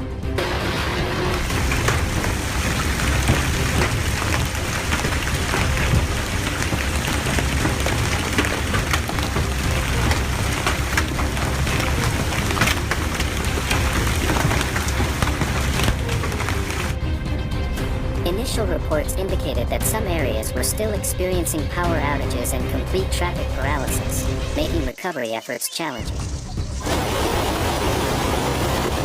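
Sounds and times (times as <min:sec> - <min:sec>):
heavy rain pounding: 0:00.4 - 0:17.0, 0:26.2 - 0:29.0.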